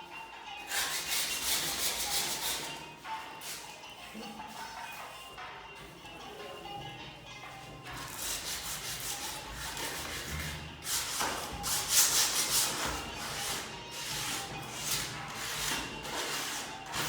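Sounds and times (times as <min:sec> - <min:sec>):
sandpaper rasping strokes: 0:00.7 - 0:02.8, 0:08.0 - 0:17.0.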